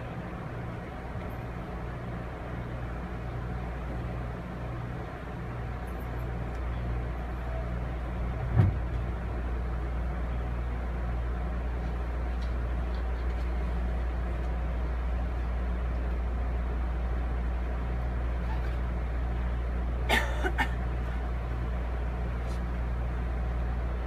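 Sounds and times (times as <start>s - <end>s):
train coach rumble and hum: 0.0s - 24.0s
sharp thump: 8.5s - 8.8s.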